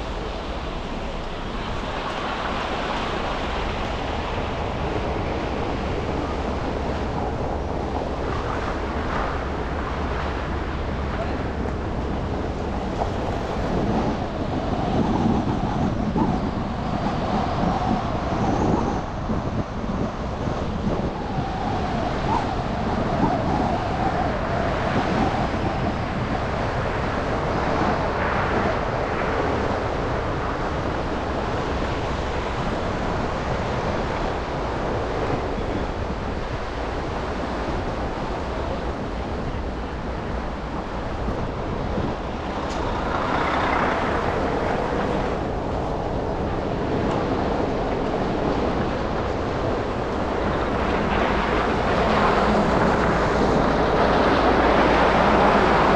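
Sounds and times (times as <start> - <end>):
tyres on road: 36.2 - 55.9
passing vehicles: 38.0 - 55.9.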